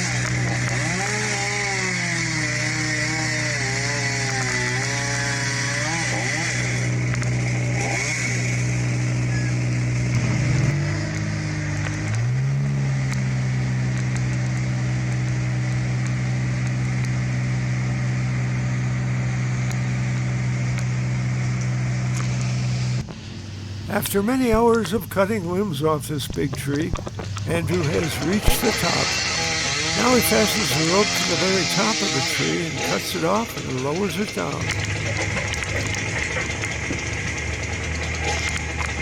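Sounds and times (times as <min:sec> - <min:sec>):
power equipment engine running: 0:00.0 - 0:39.0
second engine revving: 0:00.0 - 0:39.0.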